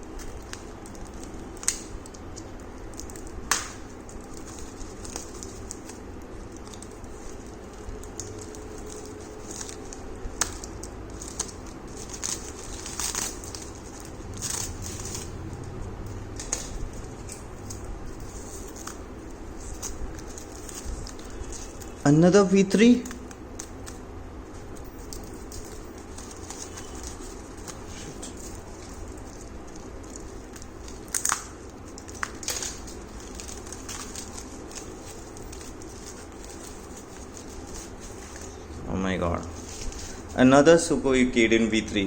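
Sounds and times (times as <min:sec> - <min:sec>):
packaging crinkling and rustling: 0:00.0 - 0:40.4.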